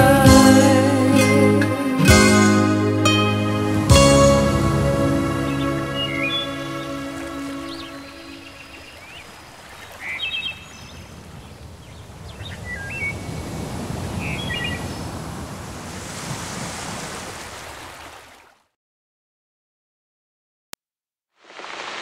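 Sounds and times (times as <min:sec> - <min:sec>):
birds chirping in trills: 0:04.3 - 0:13.6, 0:14.2 - 0:15.1
wash of water: 0:21.4 - 0:22.0.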